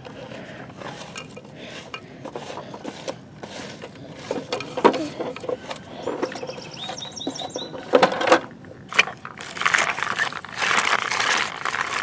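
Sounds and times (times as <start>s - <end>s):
plastic toys scraping in dirt: 0.0s - 12.0s.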